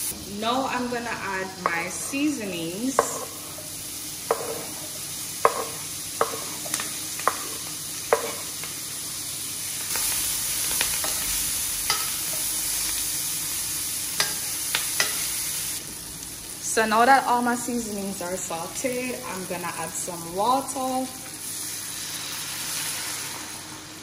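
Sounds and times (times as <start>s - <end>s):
food sizzling in pan: 0.0s - 24.0s
metal spoon knocking on board: 4.3s - 4.7s, 5.4s - 6.5s.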